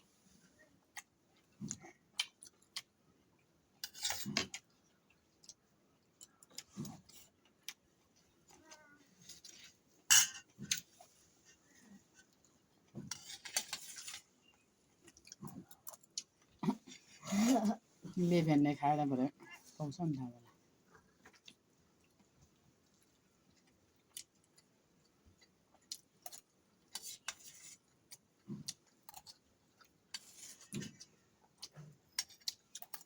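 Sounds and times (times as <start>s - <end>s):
cutlery clinking against a plate: 10.1s - 10.5s.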